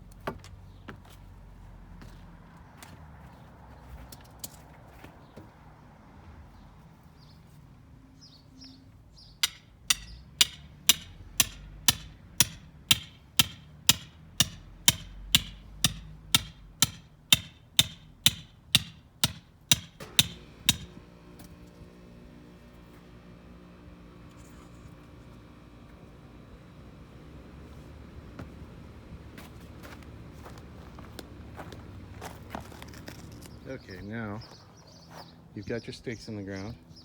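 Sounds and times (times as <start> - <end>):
hammer striking steel stake: 9.4 - 21.0.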